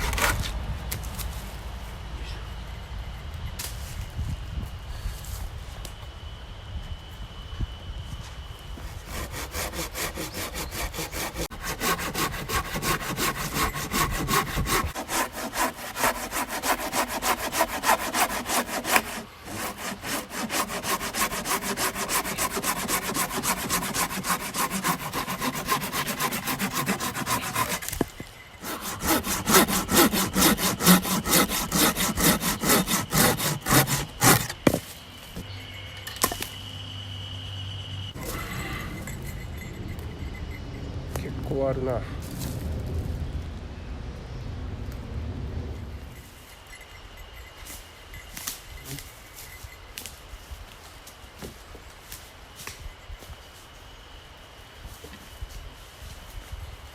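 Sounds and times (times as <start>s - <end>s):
hand saw cutting log: 8.8s - 34.8s.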